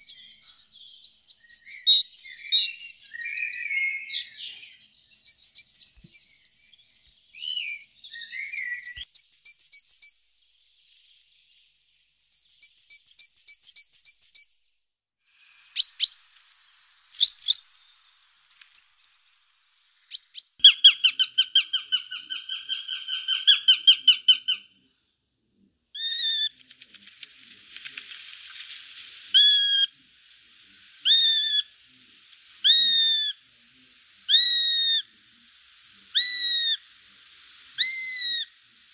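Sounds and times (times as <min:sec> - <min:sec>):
bird trill: 0:00.0 - 0:10.2, 0:12.2 - 0:14.5, 0:15.5 - 0:16.3, 0:17.1 - 0:24.7
rising-then-falling bird calls: 0:00.0 - 0:10.2, 0:15.4 - 0:24.8, 0:26.0 - 0:26.6, 0:29.3 - 0:29.9, 0:31.0 - 0:31.8, 0:32.6 - 0:33.4, 0:34.3 - 0:35.1, 0:36.0 - 0:36.9, 0:37.7 - 0:38.6
small songbirds singing: 0:00.0 - 0:14.6, 0:15.4 - 0:24.7, 0:34.0 - 0:35.1.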